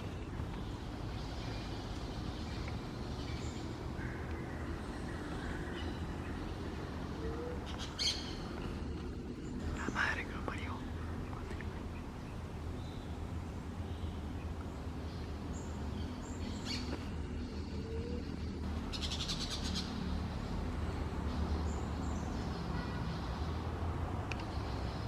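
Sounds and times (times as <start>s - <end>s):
steady low hum: 0.0s - 19.0s
wild birds chirping: 0.0s - 25.0s.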